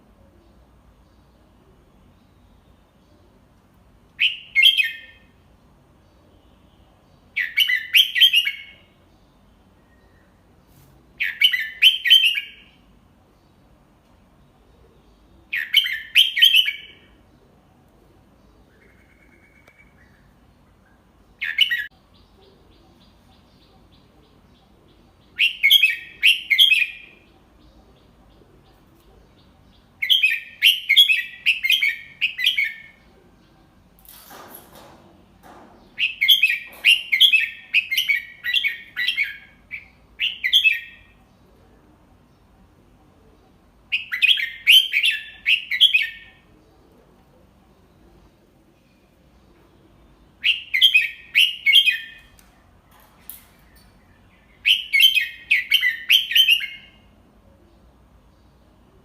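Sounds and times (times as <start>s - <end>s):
bulbul singing: 18.3s - 33.9s, 47.6s - 58.6s.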